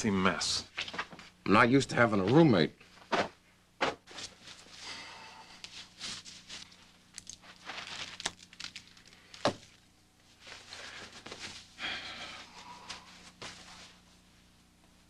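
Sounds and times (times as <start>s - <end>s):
faint steady hum: 0.0s - 15.0s
rustling and shuffling: 0.6s - 1.4s, 2.0s - 4.9s, 5.6s - 8.3s, 8.9s - 15.0s.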